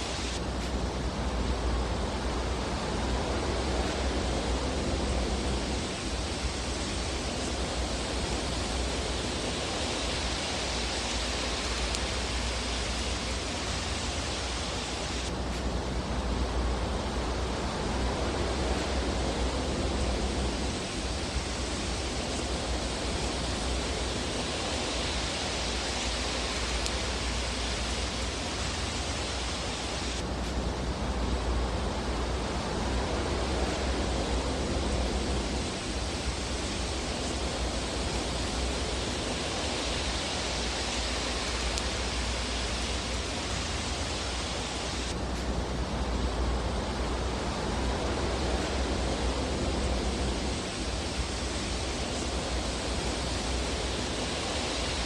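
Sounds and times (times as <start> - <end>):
fire rushing hiss: 0.0 - 55.0.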